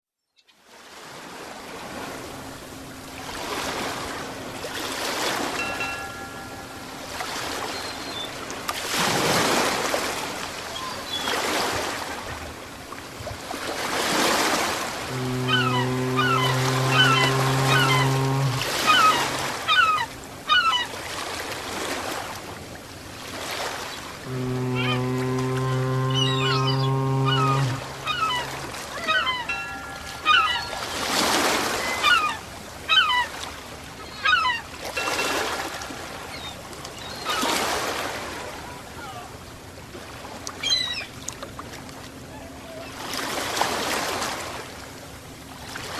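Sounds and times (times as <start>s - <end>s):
ocean waves washing in: 0.8s - 34.1s
low synth drone: 15.1s - 19.7s, 24.2s - 31.1s.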